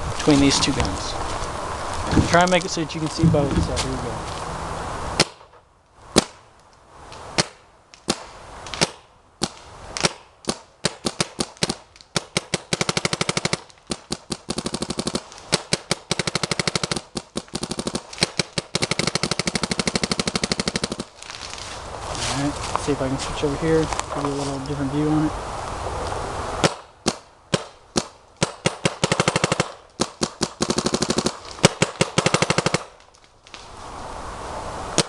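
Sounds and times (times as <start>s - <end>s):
paintball marker firing: 5.2s - 5.6s, 8.8s - 21.1s, 26.6s - 32.9s.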